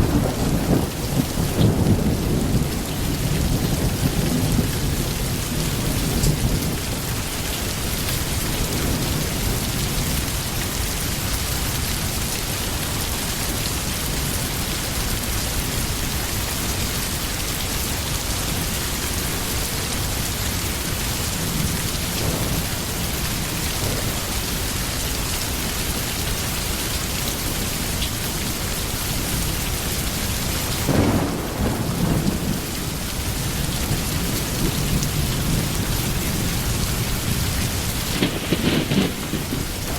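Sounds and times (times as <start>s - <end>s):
low rolls of thunder: 0.0s - 7.2s, 21.2s - 24.6s, 30.8s - 39.9s
steady rain: 0.0s - 39.9s.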